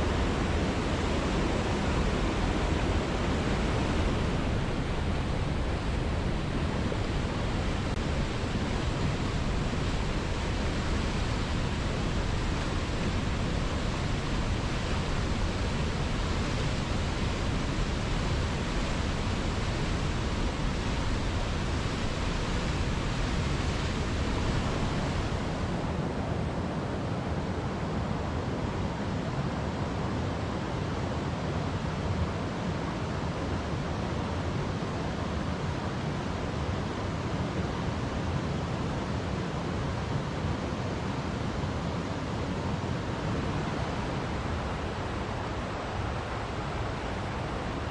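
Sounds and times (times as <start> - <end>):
waterfall rushing: 0.0 - 25.9, 42.2 - 47.9.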